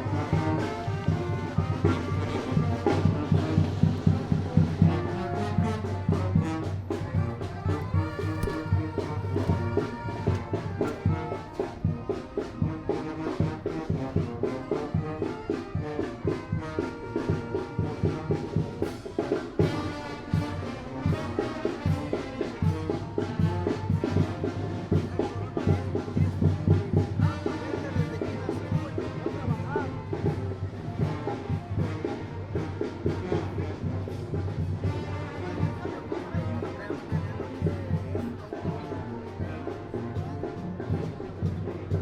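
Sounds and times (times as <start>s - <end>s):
trumpets and trombones: 0.0s - 42.0s
bass drum beat: 1.2s - 11.4s.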